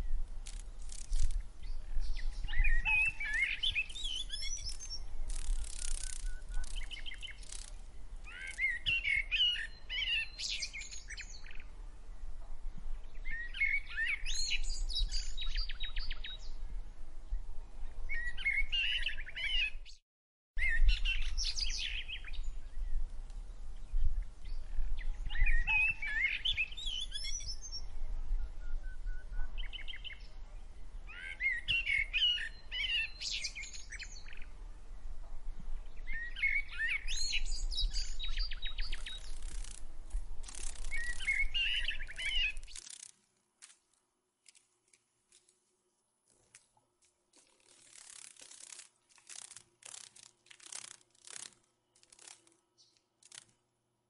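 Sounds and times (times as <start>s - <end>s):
songbirds chirping and trilling: 0.0s - 20.0s, 20.6s - 43.1s.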